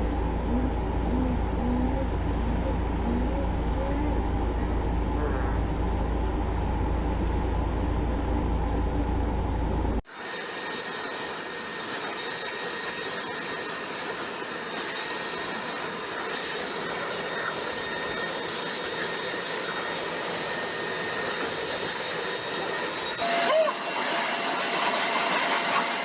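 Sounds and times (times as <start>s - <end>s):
leaf blower running: 10.1s - 26.0s.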